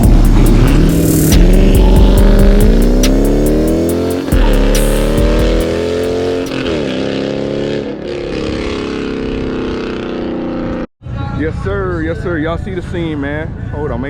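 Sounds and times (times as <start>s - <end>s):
car engine accelerating: 0.0s - 10.9s.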